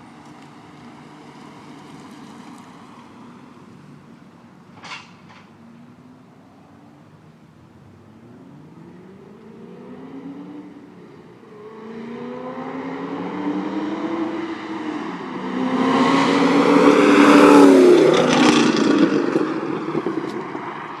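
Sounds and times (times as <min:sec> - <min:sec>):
sports car accelerating past: 0:08.1 - 0:21.0.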